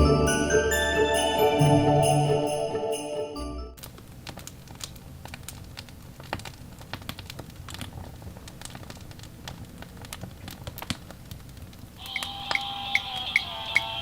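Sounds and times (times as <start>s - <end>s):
wood fire crackling: 3.8s - 13.4s.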